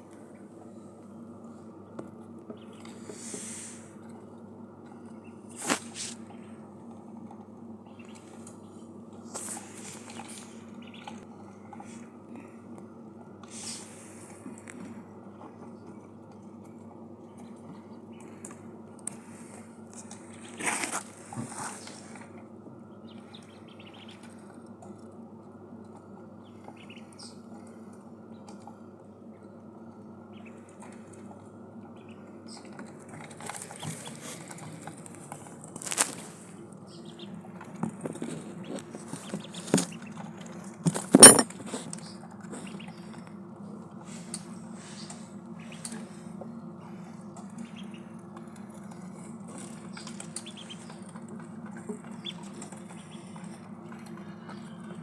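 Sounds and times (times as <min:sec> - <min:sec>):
ducklings eating and drinking: 0:00.0 - 0:55.0
faint duckling peeps: 0:09.4 - 0:11.2, 0:23.0 - 0:24.6, 0:26.4 - 0:28.5, 0:30.2 - 0:31.2, 0:42.0 - 0:43.2, 0:44.2 - 0:48.2, 0:49.7 - 0:51.1, 0:52.0 - 0:53.5
bills pecking at a dish: 0:30.3 - 0:55.0.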